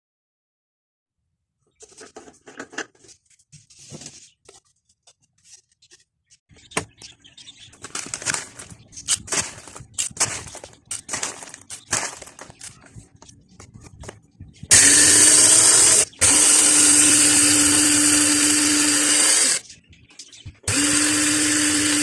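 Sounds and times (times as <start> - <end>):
rustling and crinkling: 1.7 - 14.7.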